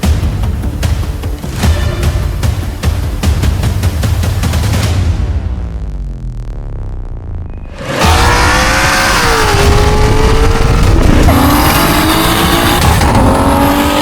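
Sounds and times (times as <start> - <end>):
race car engine revving: 7.7 - 14.0.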